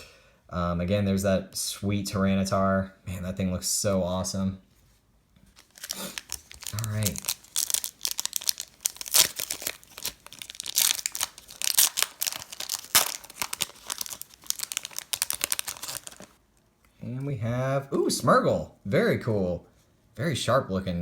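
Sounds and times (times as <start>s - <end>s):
foil wrapper tearing and crinkling: 5.5s - 16.4s.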